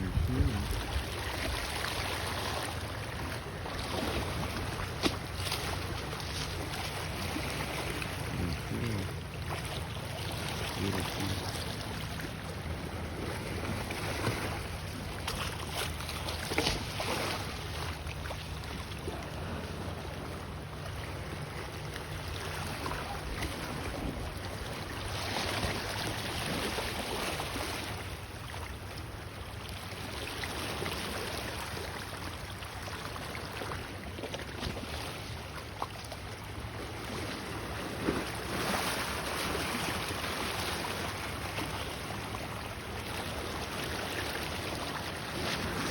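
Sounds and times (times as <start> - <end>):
wind rumbling on microphone: 0.0 - 2.3
ocean waves washing ashore: 0.0 - 45.9.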